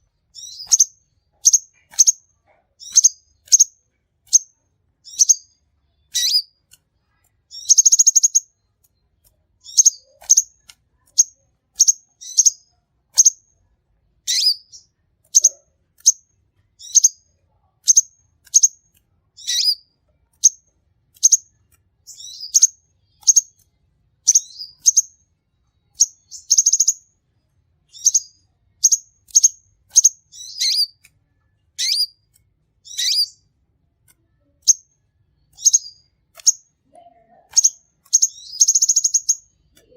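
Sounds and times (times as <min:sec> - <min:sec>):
bird trill: 0:00.0 - 0:06.6, 0:07.5 - 0:08.7, 0:09.6 - 0:13.5, 0:14.2 - 0:18.8, 0:19.4 - 0:25.3, 0:25.9 - 0:27.1, 0:27.9 - 0:31.0, 0:31.8 - 0:33.5, 0:34.4 - 0:36.7, 0:37.3 - 0:39.9
bird singing high chirps: 0:00.3 - 0:06.6, 0:07.5 - 0:08.7, 0:09.6 - 0:13.4, 0:14.2 - 0:16.2, 0:16.8 - 0:18.8, 0:19.4 - 0:20.6, 0:21.2 - 0:23.6, 0:24.2 - 0:25.2, 0:25.9 - 0:27.1, 0:27.9 - 0:31.0, 0:31.8 - 0:33.5, 0:34.5 - 0:36.7, 0:37.5 - 0:39.9.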